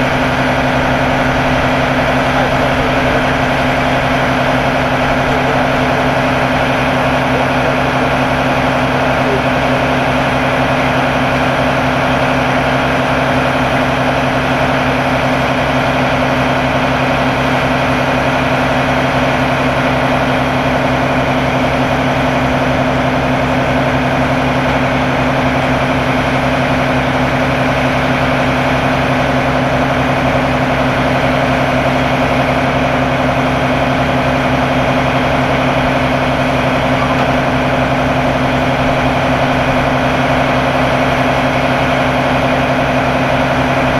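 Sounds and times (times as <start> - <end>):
truck engine idling: 0.0 - 43.9.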